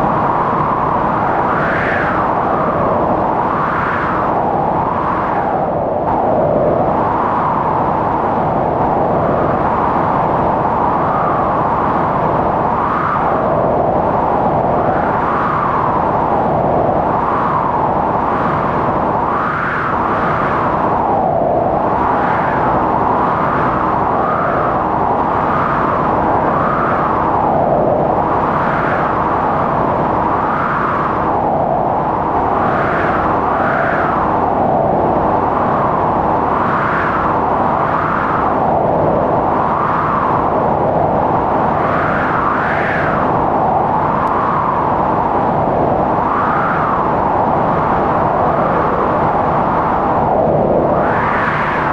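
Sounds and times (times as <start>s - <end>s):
blizzard wind howling: 0.0s - 51.9s.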